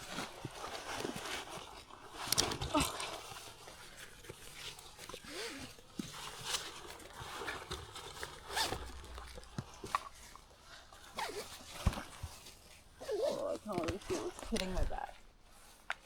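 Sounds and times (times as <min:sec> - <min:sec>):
nylon fabric rustling: 0:00.0 - 0:15.8
zipper-like rasps: 0:05.2 - 0:05.8, 0:08.2 - 0:10.0, 0:11.0 - 0:11.8, 0:13.0 - 0:14.8.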